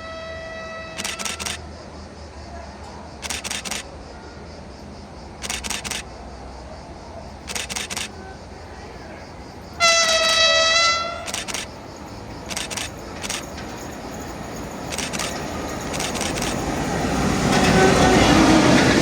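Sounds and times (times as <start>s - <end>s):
train horn blast: 0.0s - 1.0s, 9.8s - 11.3s
train wheels clacking: 0.9s - 1.6s, 3.2s - 3.9s, 5.4s - 6.2s, 7.4s - 8.3s, 9.0s - 19.0s.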